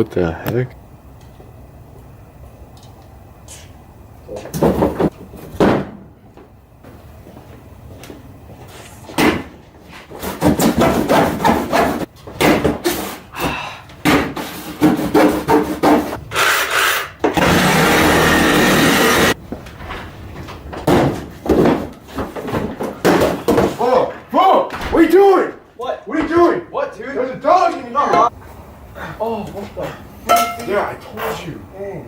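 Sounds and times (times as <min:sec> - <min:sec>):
loud steady rasp: 0:14.4 - 0:19.4.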